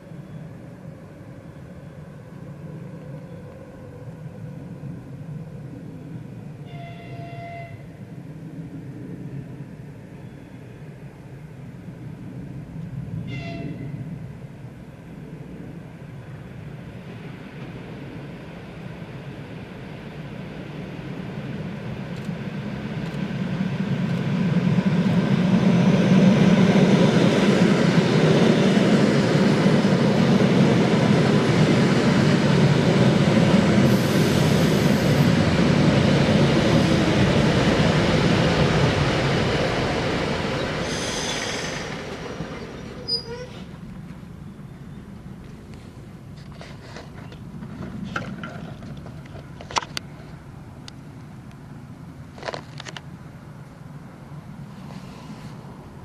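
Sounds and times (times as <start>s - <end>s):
electric train rumble and wheel noise: 0.0s - 56.0s
high-pitched wheel squeals: 42.5s - 43.7s.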